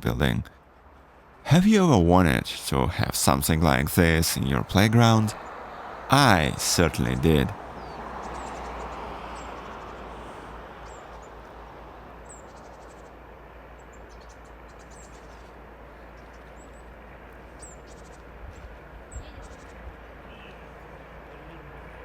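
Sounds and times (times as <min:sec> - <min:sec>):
small birds chirping: 0:07.3 - 0:21.5.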